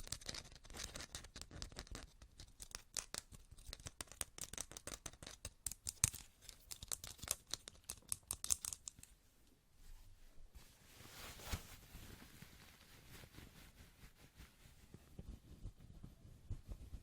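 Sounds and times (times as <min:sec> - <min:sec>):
fast clicking and tapping: 0:00.0 - 0:09.1.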